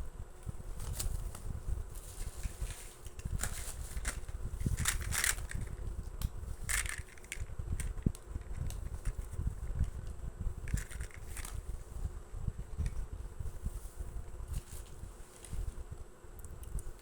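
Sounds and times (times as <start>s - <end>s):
toy cars clicking and rattling: 3.4s - 5.7s, 6.7s - 9.2s, 10.7s - 11.6s.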